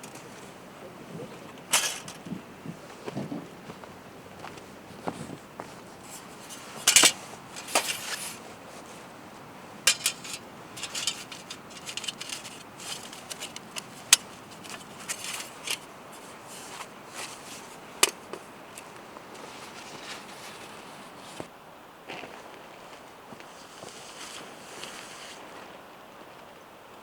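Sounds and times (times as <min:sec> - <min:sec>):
cookware scraping and rattling: 0:01.2 - 0:02.4, 0:06.0 - 0:08.6, 0:09.8 - 0:18.2
metal utensils clinking: 0:01.4 - 0:02.3, 0:06.0 - 0:08.6, 0:09.8 - 0:18.2.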